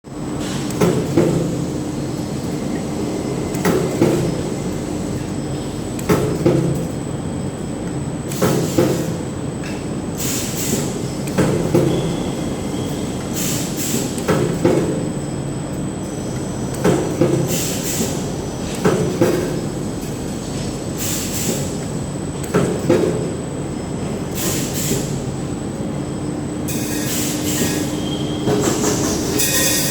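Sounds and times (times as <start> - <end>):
steady machine hum: 0.0 - 8.4, 21.6 - 29.9.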